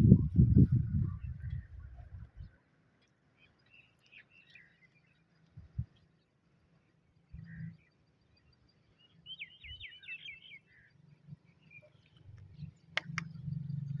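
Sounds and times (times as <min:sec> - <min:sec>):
small bird chirping: 0:07.1 - 0:14.0
sharp clicks: 0:12.2 - 0:13.5.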